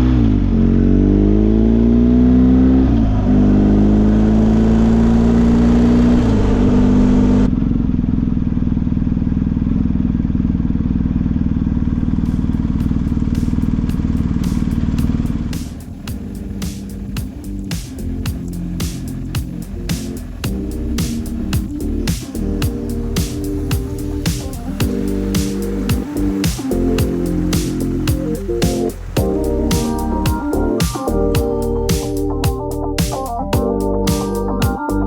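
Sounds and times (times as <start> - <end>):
motorcycle engine accelerating: 0.0 - 35.0
road noise: 0.0 - 35.0
sharp clicks: 13.3 - 34.8.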